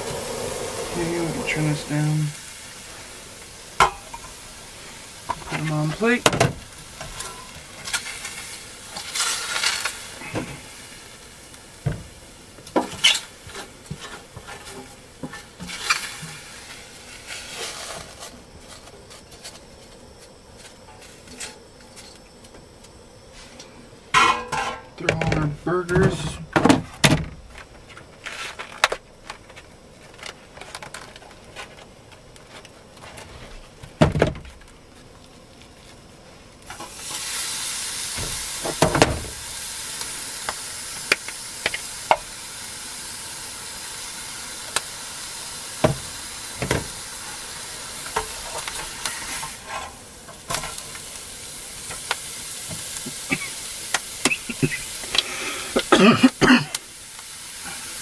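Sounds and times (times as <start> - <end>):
oil popping: 0.0 - 10.8, 43.9 - 57.6
food sizzling in a pan: 0.0 - 22.4, 36.6 - 58.0.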